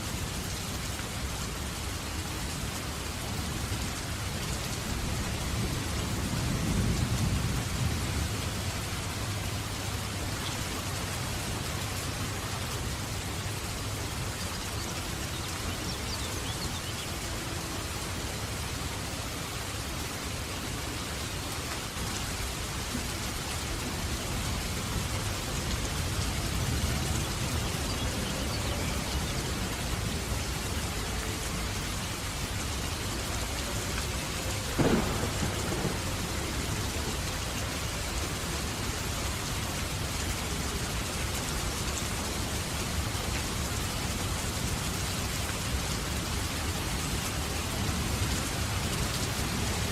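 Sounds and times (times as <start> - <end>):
steady rain falling: 0.0 - 49.9
low thunder rumbling: 34.6 - 37.5
sharp thunder crack: 34.8 - 36.2.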